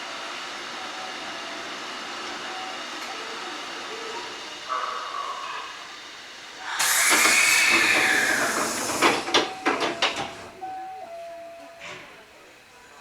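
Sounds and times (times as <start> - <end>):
compressed air hissing: 6.6 - 9.5.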